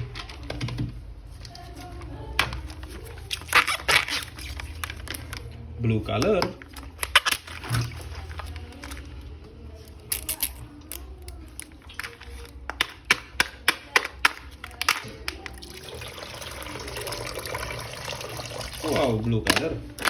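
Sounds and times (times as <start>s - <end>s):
water pouring and splashing: 15.6s - 19.1s.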